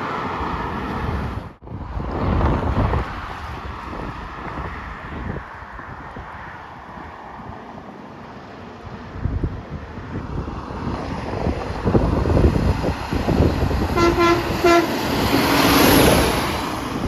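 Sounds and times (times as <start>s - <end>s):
road traffic rumble: 0.0s - 17.0s
truck passing by: 0.0s - 17.0s
wind on microphone: 0.4s - 7.6s, 8.8s - 17.0s
truck horn toots: 14.0s - 15.3s.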